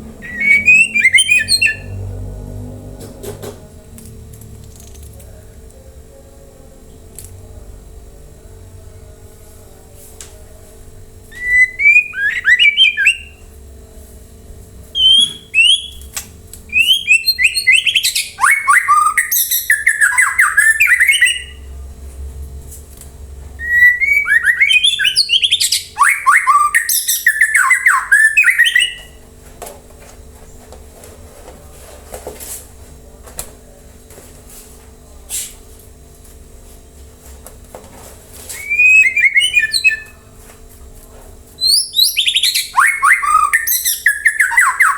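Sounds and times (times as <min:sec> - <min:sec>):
songbird whistling and chattering: 0:00.2 - 0:02.0, 0:11.3 - 0:13.4, 0:15.0 - 0:16.1, 0:16.7 - 0:21.6, 0:23.6 - 0:29.2, 0:38.5 - 0:40.2, 0:41.6 - 0:44.9.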